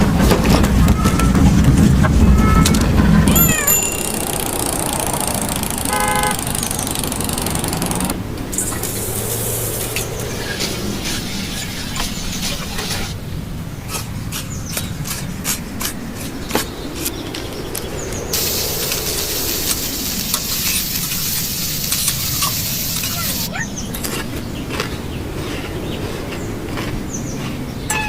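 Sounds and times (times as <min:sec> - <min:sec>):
utensils clicking and tapping: 0:03.3 - 0:09.4
loud sizzling hiss: 0:04.1 - 0:13.2, 0:18.2 - 0:23.5.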